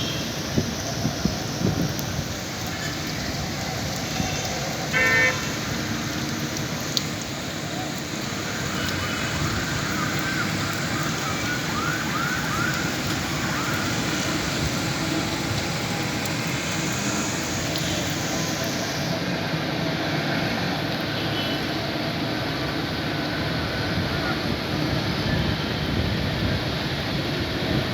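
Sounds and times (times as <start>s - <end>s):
heavy rain hissing: 0.0s - 27.9s
street background noise: 0.0s - 27.9s
short loud horn blast: 4.9s - 5.6s.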